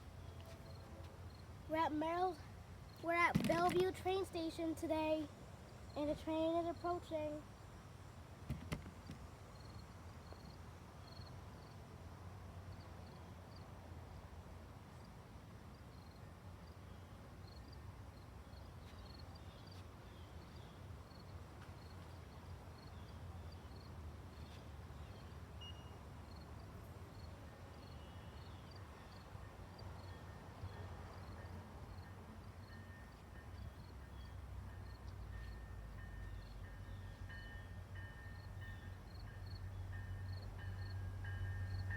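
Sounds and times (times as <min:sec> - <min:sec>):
train rumble: 0:28.8 - 0:41.9.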